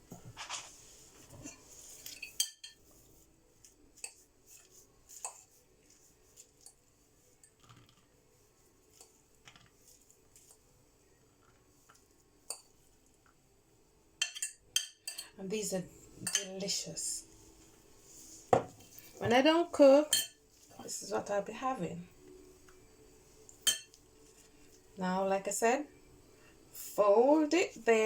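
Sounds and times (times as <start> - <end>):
cutlery clinking against dishes: 1.3 - 2.8, 14.2 - 15.4, 16.2 - 16.6, 20.1 - 20.4, 23.6 - 24.0.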